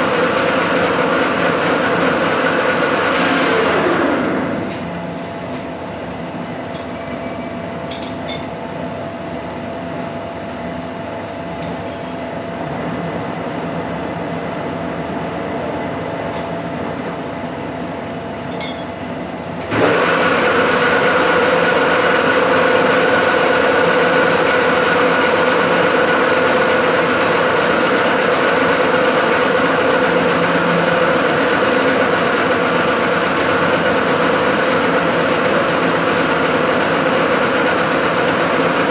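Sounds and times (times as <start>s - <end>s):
machine whine: 0.0s - 8.1s, 19.7s - 38.9s
metalworking machine humming: 0.0s - 8.4s, 19.7s - 38.9s.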